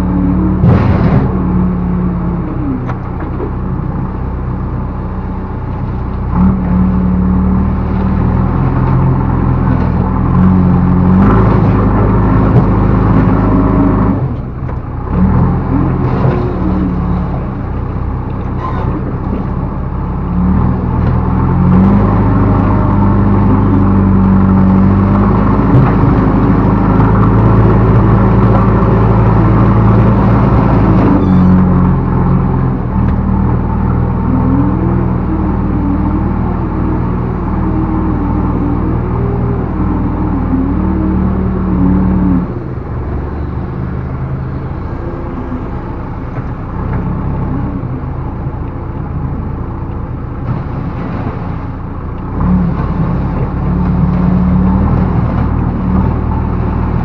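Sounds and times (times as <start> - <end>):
backhoe diesel engine revving: 0.0 - 57.0.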